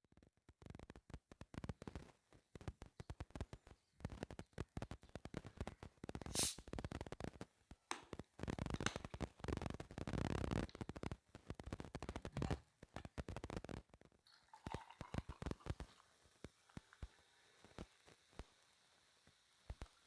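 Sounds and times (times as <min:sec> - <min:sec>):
loud hissing burst: 0:06.3 - 0:06.6.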